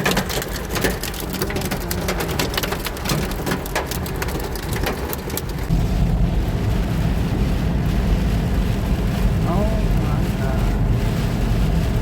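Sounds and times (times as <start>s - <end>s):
hailstones striking a car: 0.0s - 12.0s
low rumble: 1.2s - 12.0s
heavy rain hiss: 5.7s - 12.0s.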